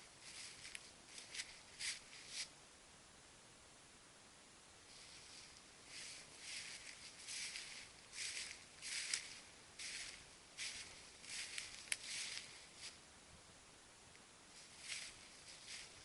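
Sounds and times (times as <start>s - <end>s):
footsteps through dry leaves: 0.0s - 2.5s, 4.9s - 13.0s, 14.6s - 16.0s.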